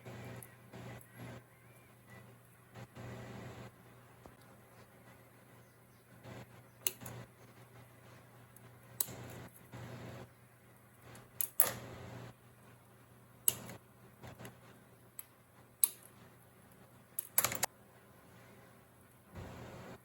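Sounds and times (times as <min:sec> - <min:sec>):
plastic parts clicking and tapping: 0:17.2 - 0:17.7.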